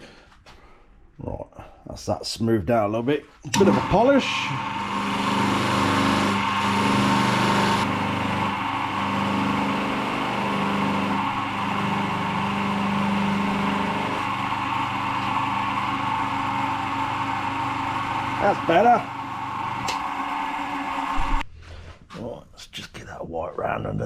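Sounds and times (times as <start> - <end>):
electric motor running: 3.6 - 21.4.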